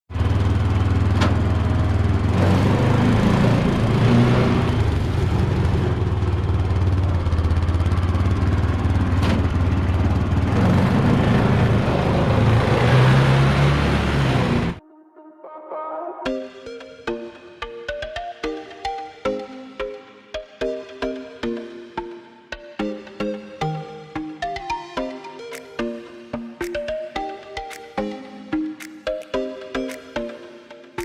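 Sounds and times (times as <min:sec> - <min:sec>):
small motorbike engine humming: 0:00.1 - 0:14.8.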